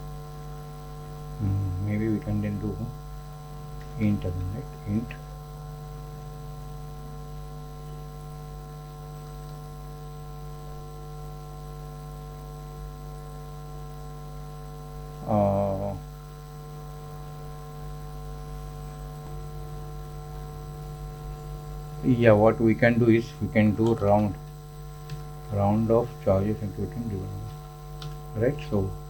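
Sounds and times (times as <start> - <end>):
electrical mains hum: 0.0 - 29.0
man's wordless vocal sound: 1.4 - 2.3.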